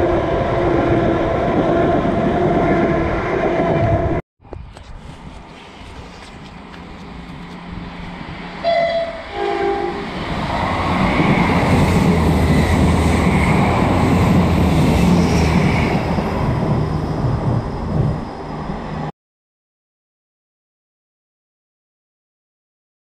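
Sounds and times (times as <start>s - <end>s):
train rumbling past on rails: 0.0s - 4.2s, 4.9s - 19.1s
train horn notes: 8.6s - 10.1s.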